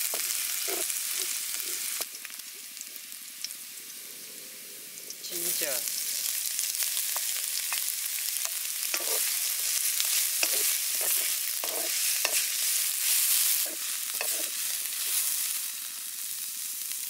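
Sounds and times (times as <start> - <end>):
wooden spatula scraping a wok: 0.0 - 2.0, 8.8 - 15.6
ginger and garlic sizzling in oil: 0.0 - 17.0.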